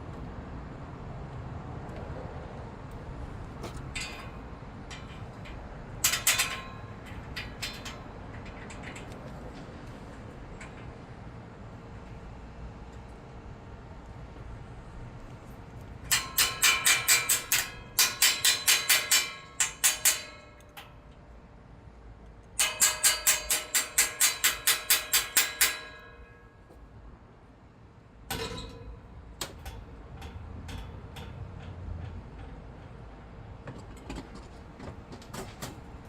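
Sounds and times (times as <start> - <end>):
hammer striking metal gate: 3.6 - 9.2, 16.1 - 21.1, 22.6 - 26.8, 28.2 - 32.9.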